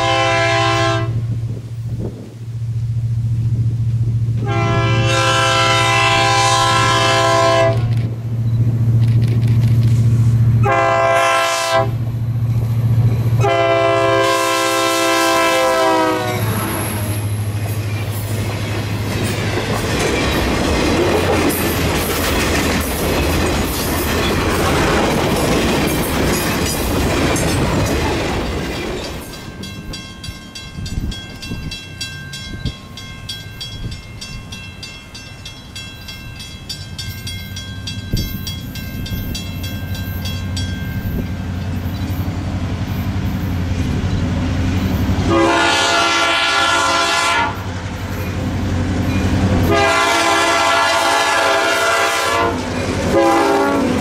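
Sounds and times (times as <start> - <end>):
train horn blasts: 0.0 - 1.4, 4.4 - 7.9, 10.6 - 12.0, 13.4 - 17.4, 45.2 - 47.8, 49.6 - 54.0
locomotive engine droning: 0.0 - 54.0
train wheels rumbling on rails: 0.0 - 54.0.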